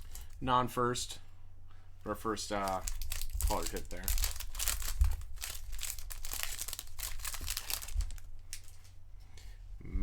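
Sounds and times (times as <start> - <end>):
foil wrapper crinkling: 0.0 - 0.4, 2.4 - 8.9
foil wrapper rustling: 0.0 - 0.4, 2.4 - 8.9.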